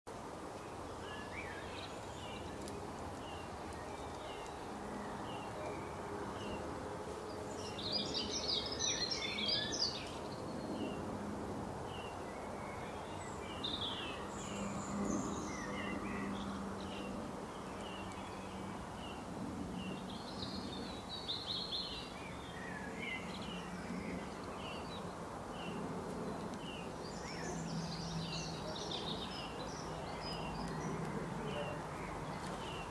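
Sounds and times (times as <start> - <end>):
steady low background noise: 0.1 - 32.9
busy high-pitched birdsong: 0.7 - 11.1, 11.9 - 32.9.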